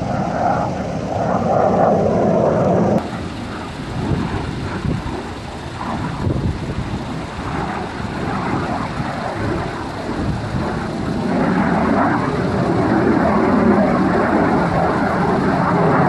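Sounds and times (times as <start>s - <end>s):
aircraft engines rumbling overhead: 0.0s - 16.0s.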